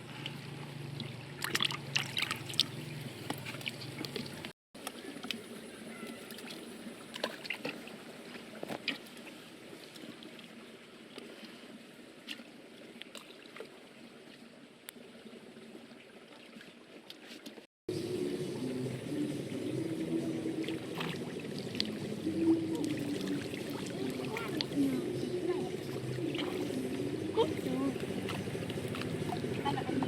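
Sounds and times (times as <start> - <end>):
small water splashes: 0.0 - 17.7, 20.3 - 30.0
water sloshing and trickling: 0.0 - 30.0
low hum: 17.9 - 30.0.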